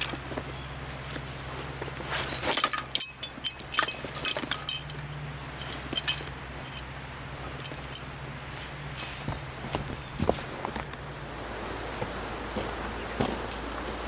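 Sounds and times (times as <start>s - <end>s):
steady low hum: 0.0s - 14.0s
small metal items clinking: 2.1s - 6.9s, 7.6s - 8.1s.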